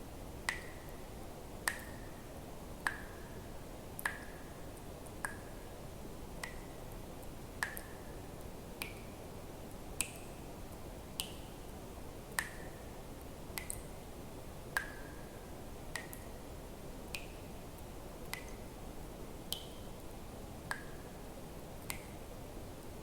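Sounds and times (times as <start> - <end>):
steady low hiss: 0.0 - 23.0
water drops plipping into water: 0.4 - 0.9, 1.6 - 2.1, 4.0 - 4.4, 5.2 - 5.5, 6.4 - 6.7, 7.6 - 7.9, 12.4 - 12.8, 13.6 - 13.9, 15.9 - 16.3, 21.8 - 22.1.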